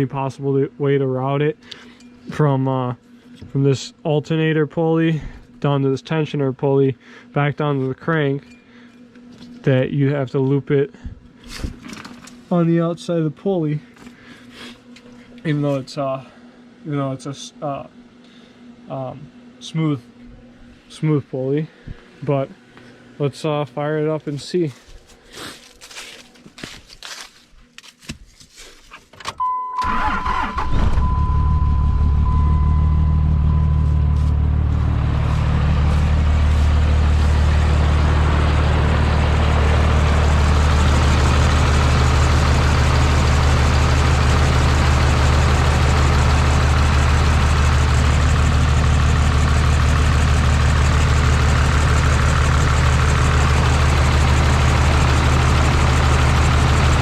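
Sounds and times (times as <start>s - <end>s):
diesel engine cranking: 29.8s - 57.0s
thin high whine: 30.1s - 37.5s
diesel engine idling rough: 31.1s - 57.0s.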